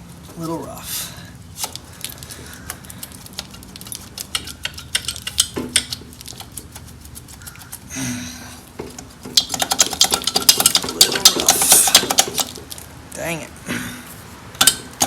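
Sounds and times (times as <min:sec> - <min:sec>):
rustle: 0:00.0 - 0:15.0
metallic clicks of tools and parts: 0:02.8 - 0:06.6, 0:14.6 - 0:15.0.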